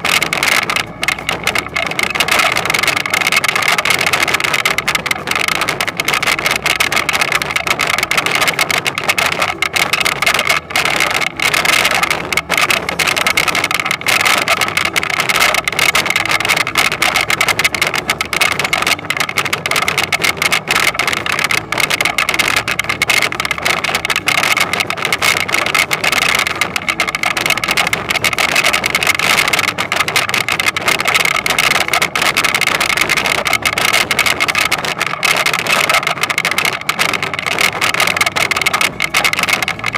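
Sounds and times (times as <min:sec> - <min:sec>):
harvester mechanical drone: 0:00.0 - 0:39.9.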